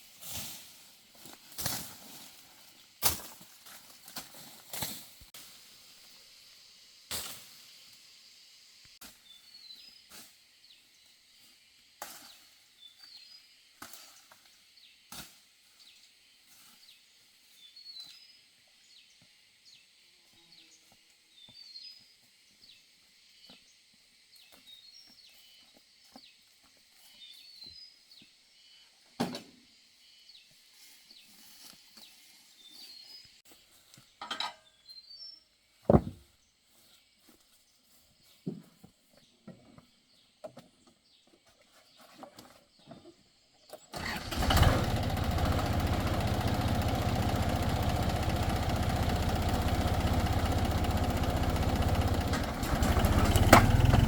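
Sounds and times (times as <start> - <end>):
steady high hiss: 5.0 - 9.6
wood knocking: 35.9 - 36.2.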